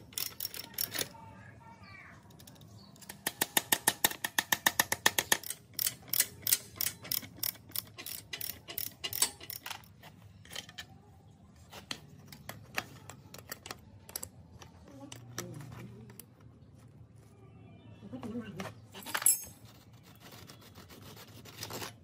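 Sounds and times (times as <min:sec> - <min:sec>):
ratchet wrench clicking: 0:00.0 - 0:01.1, 0:02.4 - 0:09.9
metal clicks: 0:02.3 - 0:10.9, 0:11.9 - 0:15.4.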